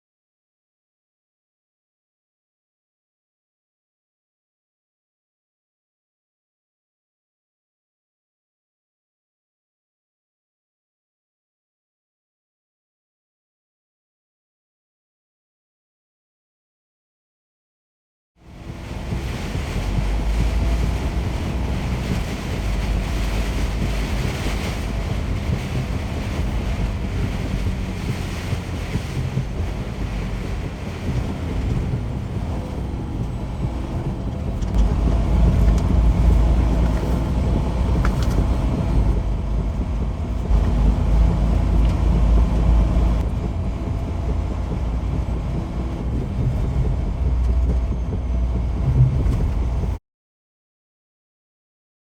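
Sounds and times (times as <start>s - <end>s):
semi truck engine rumbling: 18.4s - 50.0s
wind buffeting microphone: 18.5s - 50.0s.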